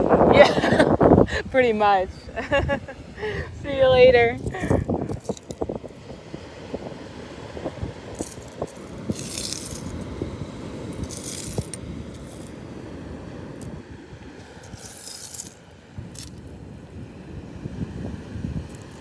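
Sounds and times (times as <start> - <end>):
seashells clinking and rattling: 4.4 - 6.0, 8.2 - 10.1, 10.9 - 12.6, 14.5 - 16.5, 18.7 - 19.0.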